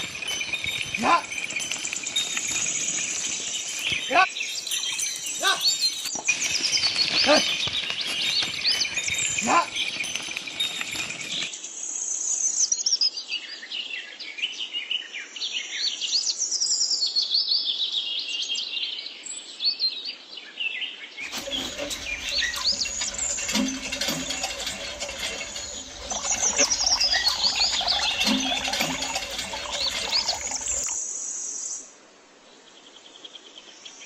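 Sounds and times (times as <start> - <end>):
small birds chirping: 0.0 - 11.5
broad noise: 21.2 - 31.0.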